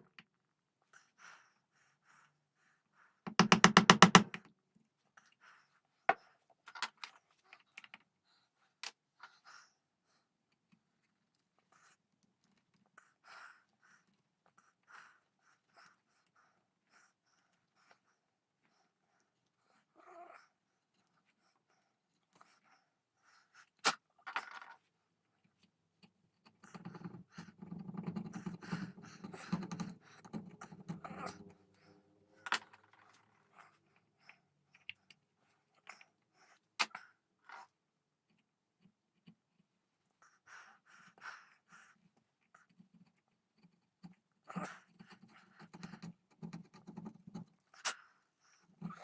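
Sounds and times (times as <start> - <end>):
chisel scraping wood: 3.3 - 4.3, 26.7 - 31.6
sharp taps: 3.3 - 4.4.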